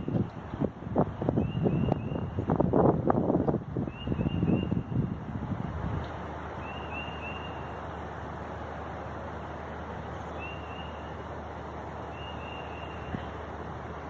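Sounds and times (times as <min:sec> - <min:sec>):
strong gusty wind: 0:00.0 - 0:06.7.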